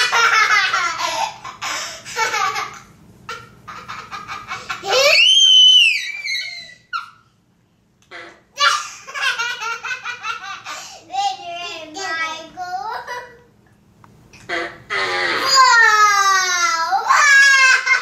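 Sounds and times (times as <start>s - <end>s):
children laughing: 0.0s - 7.1s, 8.6s - 10.9s, 17.0s - 18.0s.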